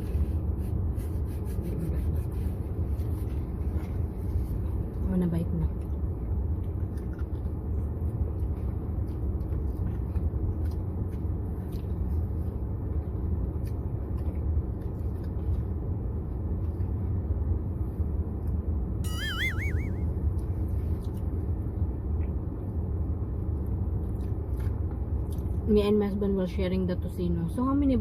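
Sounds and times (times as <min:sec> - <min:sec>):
low rumble inside car cabin: 0:00.0 - 0:28.0.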